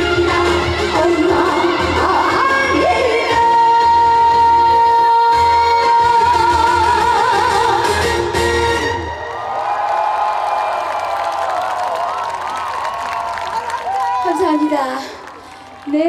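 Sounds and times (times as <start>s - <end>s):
live band playing: 0.0s - 9.3s.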